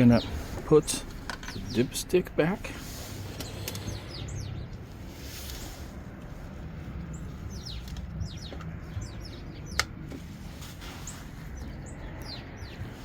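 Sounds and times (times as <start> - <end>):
small birds chirping: 0.0 - 13.0
steady low rumble: 0.0 - 13.0.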